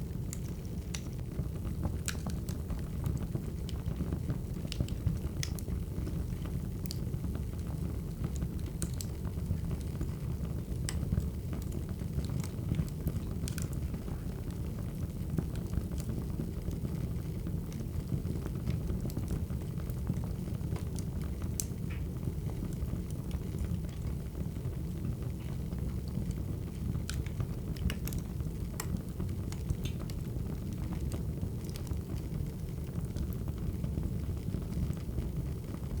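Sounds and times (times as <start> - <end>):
fire crackling and popping: 0.0 - 36.0.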